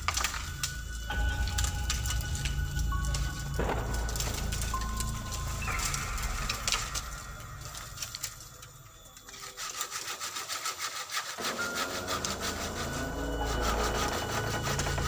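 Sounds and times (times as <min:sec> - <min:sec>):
saw cutting bamboo: 0:09.3 - 0:15.0.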